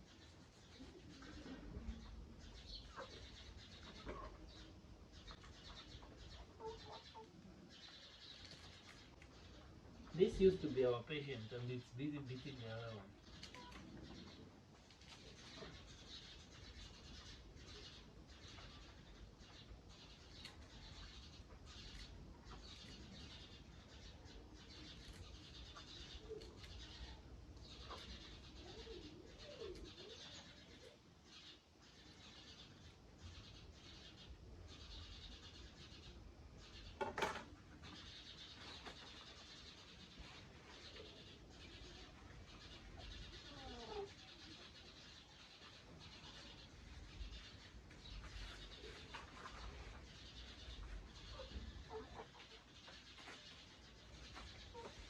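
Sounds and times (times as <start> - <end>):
chickens clucking: 0.0 - 11.0, 12.6 - 31.0, 48.0 - 55.0
faint low bird call: 12.3 - 14.5.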